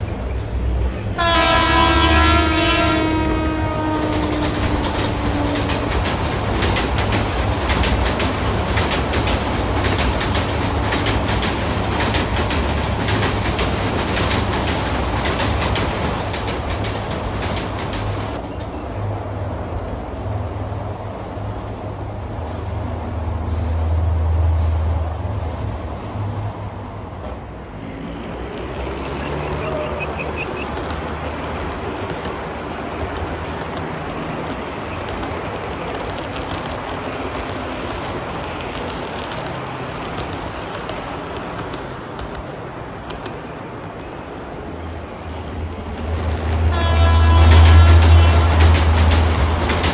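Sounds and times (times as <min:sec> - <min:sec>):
wheels clicking over rail joints: 0:00.0 - 0:25.7, 0:27.2 - 0:49.9
train rumbling on rails: 0:00.0 - 0:49.9
train horn: 0:01.1 - 0:06.3, 0:46.1 - 0:49.6.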